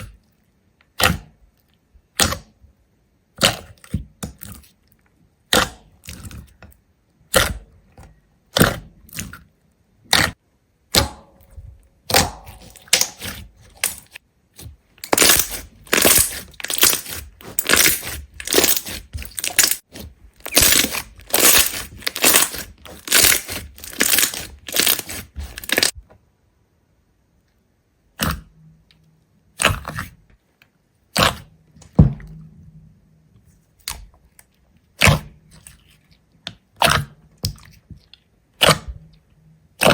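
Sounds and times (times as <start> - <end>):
brittle cracks and crunches: 15.0 - 26.0.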